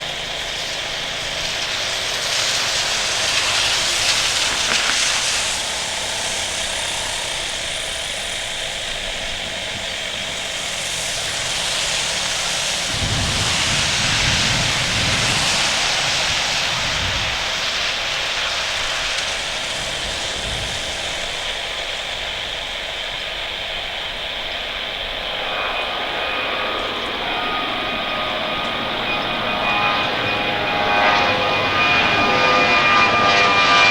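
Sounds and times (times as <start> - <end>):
jet engines roaring: 0.0 - 33.9.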